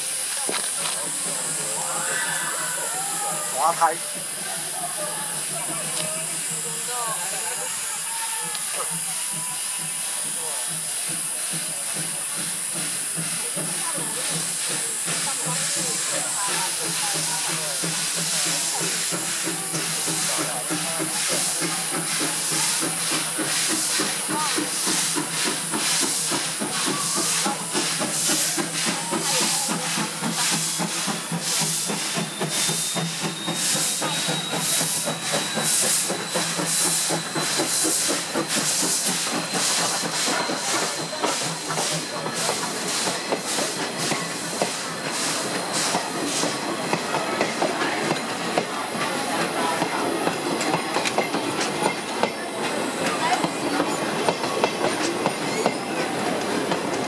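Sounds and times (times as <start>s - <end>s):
steam hissing: 0.0s - 57.0s
steam locomotive chuffing: 0.0s - 57.0s.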